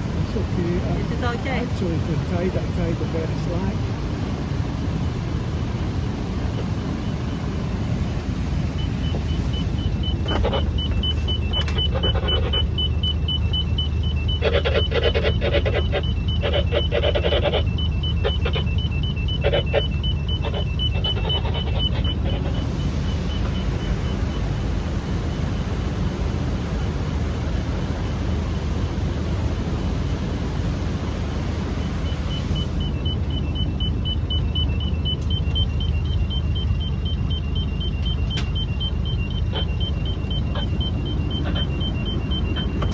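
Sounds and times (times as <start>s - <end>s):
boat engine running: 6.2s - 25.3s, 30.5s - 42.9s
rapid high electronic beeping: 8.7s - 24.4s, 31.8s - 42.9s.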